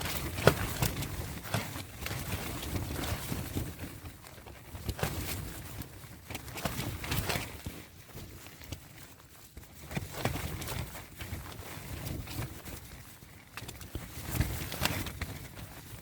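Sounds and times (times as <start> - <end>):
tarp flapping in wind: 0.0 - 16.0.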